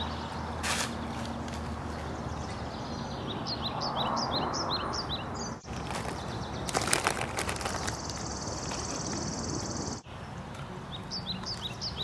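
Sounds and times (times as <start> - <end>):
outdoor background noise: 0.0 - 12.0
small bird chirping: 1.9 - 10.1.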